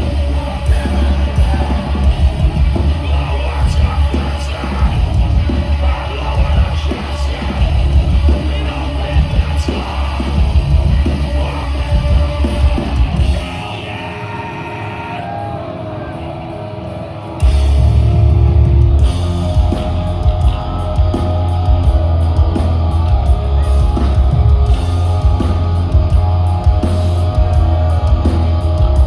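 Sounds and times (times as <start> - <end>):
bass guitar: 0.0 - 29.0
distorted guitars: 0.0 - 29.0
drums: 0.0 - 29.0
screamed vocals: 11.3 - 16.7.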